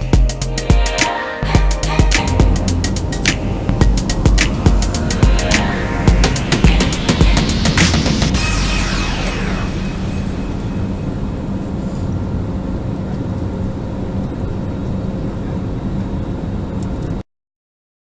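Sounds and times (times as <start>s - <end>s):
steady hum: 0.0s - 14.2s.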